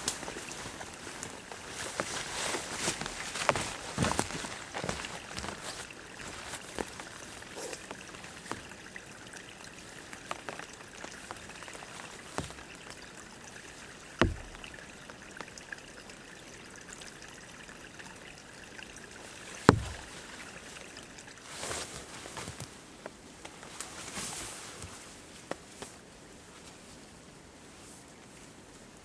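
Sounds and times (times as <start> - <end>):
stream trickling: 0.0 - 25.1
sharp knocks: 14.2 - 14.8, 19.7 - 20.1.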